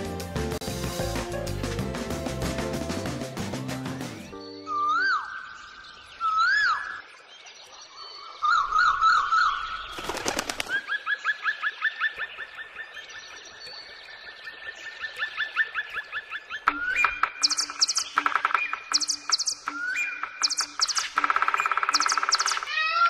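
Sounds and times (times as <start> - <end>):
birdsong whistled calls and trills: 4.3 - 23.0
wings fluttering: 9.8 - 11.0, 20.3 - 23.0.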